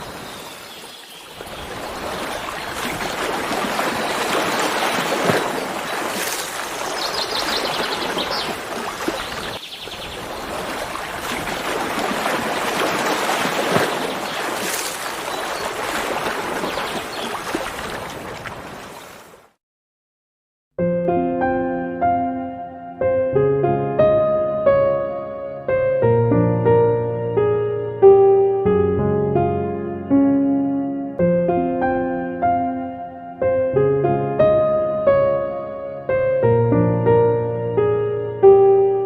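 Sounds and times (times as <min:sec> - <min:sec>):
running water rushing: 0:00.0 - 0:19.5.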